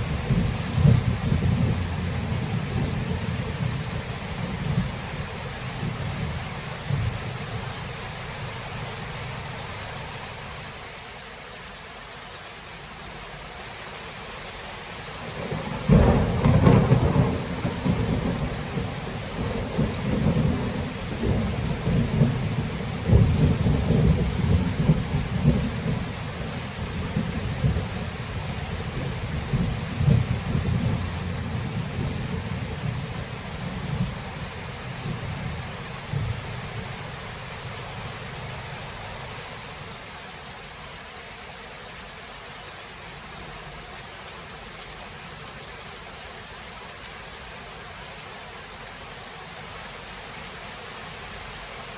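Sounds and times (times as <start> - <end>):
rolling rumble of thunder: 0.0 - 7.8, 15.2 - 38.9
steady rain: 0.0 - 51.9
thunderclap: 0.2 - 3.7, 15.4 - 28.0, 29.0 - 33.2.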